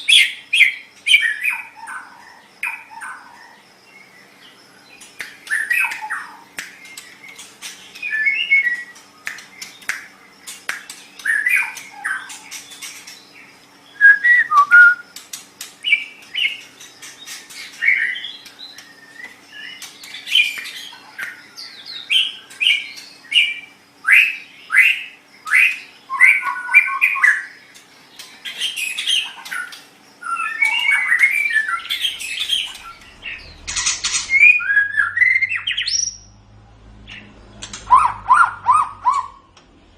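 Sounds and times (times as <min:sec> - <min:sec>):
sharp clicks: 0:09.2 - 0:11.9, 0:37.6 - 0:37.9
bird singing whistled phrases: 0:13.9 - 0:15.1, 0:30.2 - 0:36.2.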